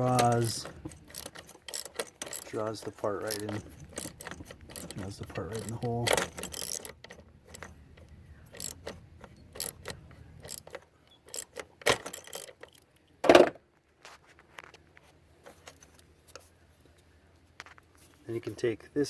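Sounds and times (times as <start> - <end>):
socket wrench clicking on metal: 0.0 - 2.6, 3.2 - 12.9.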